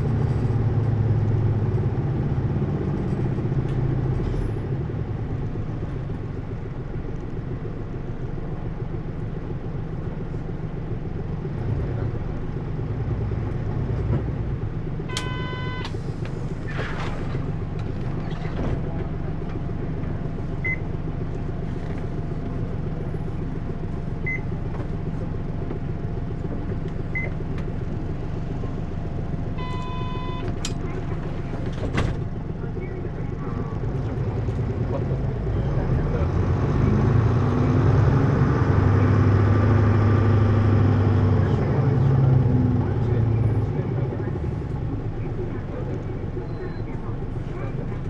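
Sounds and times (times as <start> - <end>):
bus engine rumble: 0.0 - 48.0.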